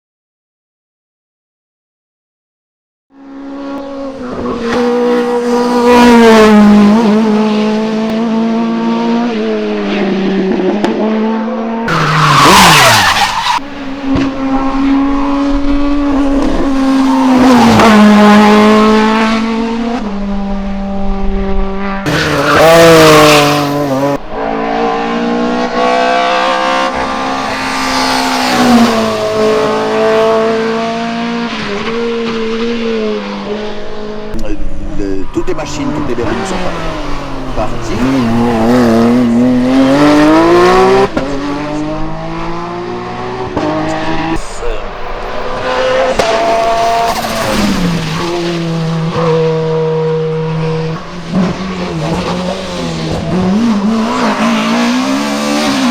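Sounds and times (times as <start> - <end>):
racing car engines revving: 3.1 - 55.9.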